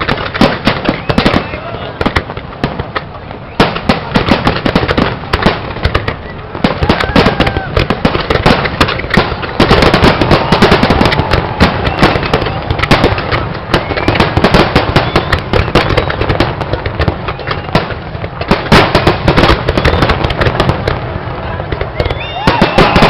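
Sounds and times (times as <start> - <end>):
firework whistles: 0.0 - 2.2, 3.3 - 18.0, 18.8 - 20.4, 21.7 - 23.0
fireworks bangs and crackling: 0.0 - 23.0.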